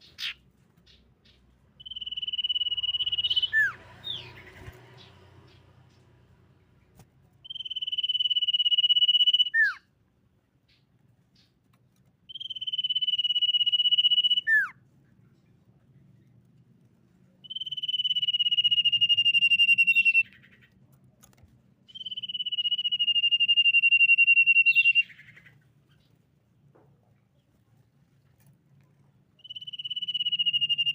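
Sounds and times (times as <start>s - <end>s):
bird whistling: 1.8s - 4.5s, 7.4s - 9.8s, 12.3s - 14.7s, 17.4s - 20.6s, 21.9s - 26.0s, 29.4s - 30.9s.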